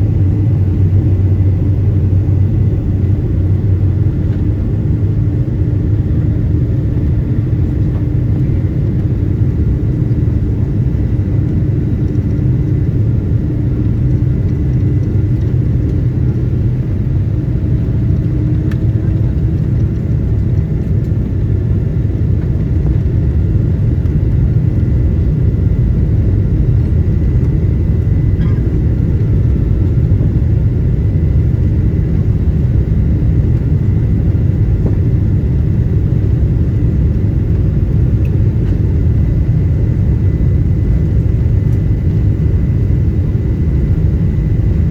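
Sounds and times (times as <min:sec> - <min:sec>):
airplane engines rumbling in cabin: 0:00.0 - 0:44.9
faint steady whine: 0:00.0 - 0:44.9.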